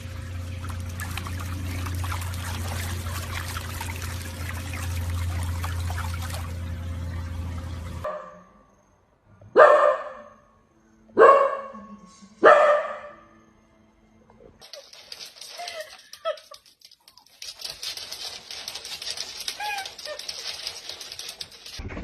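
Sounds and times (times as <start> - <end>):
low hum: 0.0 - 8.1
dog barking: 8.0 - 8.5, 9.6 - 10.4, 11.2 - 11.8, 12.4 - 13.3.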